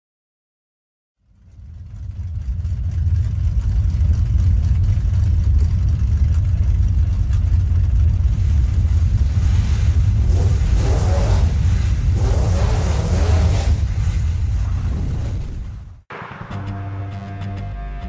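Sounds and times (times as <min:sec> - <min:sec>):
car rumbling on the move: 0:01.2 - 0:15.5.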